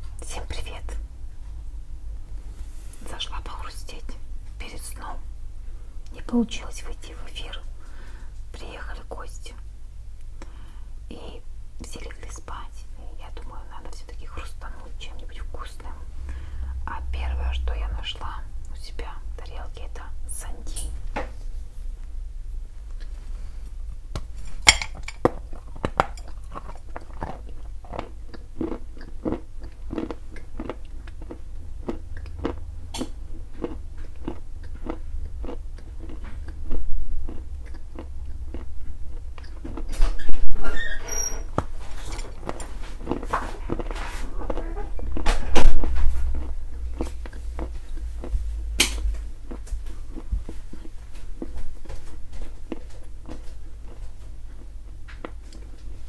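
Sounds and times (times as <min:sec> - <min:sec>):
crunching chewing of mineral lump: 0:24.2 - 0:40.3, 0:41.6 - 0:55.8.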